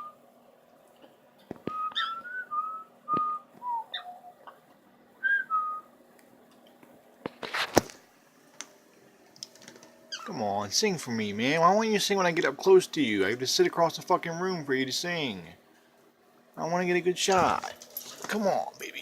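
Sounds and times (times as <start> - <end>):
bird whistling: 1.7 - 4.4.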